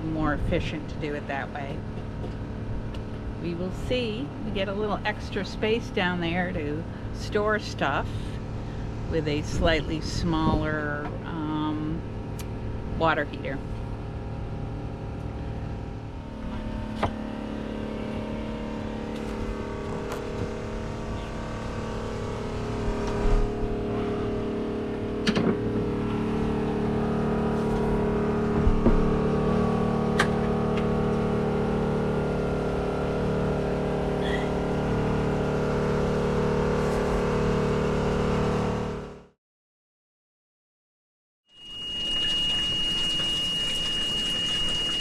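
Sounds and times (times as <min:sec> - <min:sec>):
steady machine drone: 0:00.0 - 0:39.3, 0:41.6 - 0:45.0
sharp clicks and knocks: 0:25.2 - 0:25.6.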